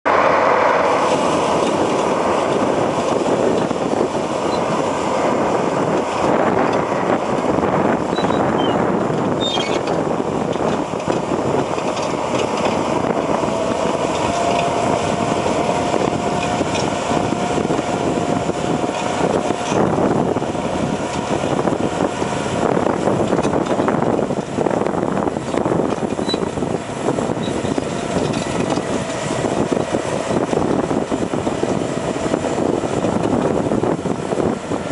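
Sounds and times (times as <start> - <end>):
bulldozer diesel engine running: 0.1 - 34.9
dense irregular rattle: 22.6 - 29.7.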